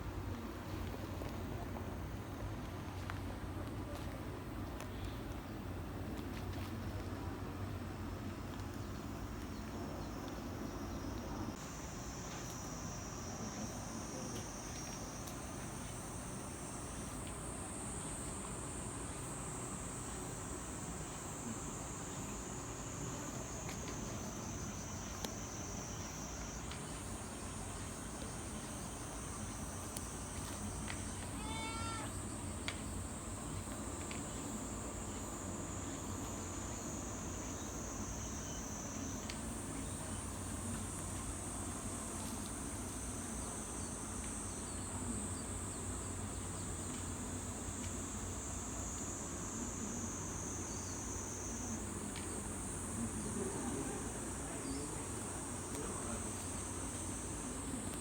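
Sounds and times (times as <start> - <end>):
insects trilling: 8.8 - 58.0
cat meow: 31.4 - 32.1.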